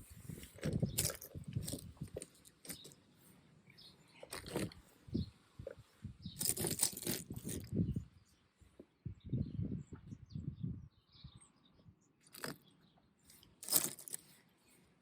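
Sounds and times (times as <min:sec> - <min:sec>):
ice pieces clinking and crunching: 0:06.4 - 0:07.7, 0:12.3 - 0:12.6, 0:13.6 - 0:14.2.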